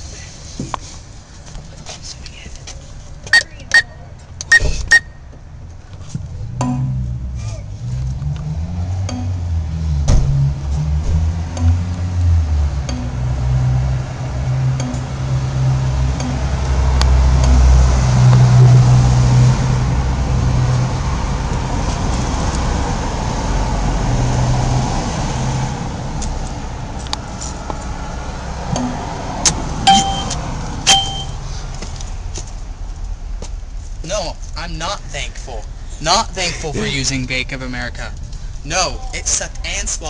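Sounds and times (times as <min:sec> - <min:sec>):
short electronic beep: 0:03.3 - 0:05.2, 0:29.9 - 0:31.4.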